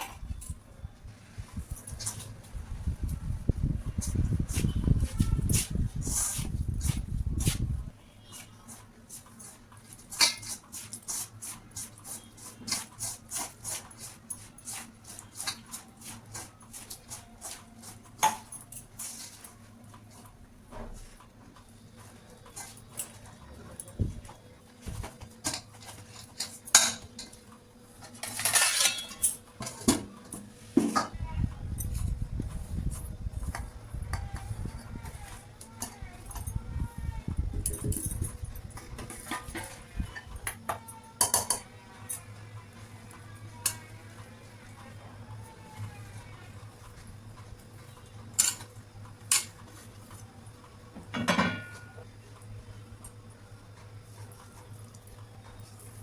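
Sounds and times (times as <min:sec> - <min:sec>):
utensil scraping: 0:01.5 - 0:21.2
steady low hum: 0:20.4 - 0:41.2
metal utensils clinking: 0:25.4 - 0:27.4, 0:28.0 - 0:29.9, 0:48.4 - 0:48.7
utensils clattering with ringing: 0:25.4 - 0:31.2, 0:33.4 - 0:42.7, 0:46.8 - 0:49.8, 0:51.1 - 0:52.1
dishes clinking: 0:28.1 - 0:30.0, 0:51.0 - 0:52.0.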